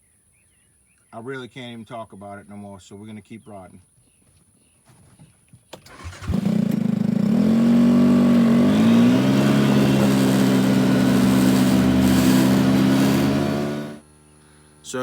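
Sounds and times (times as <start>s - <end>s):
vehicle engine revving: 5.9s - 14.0s.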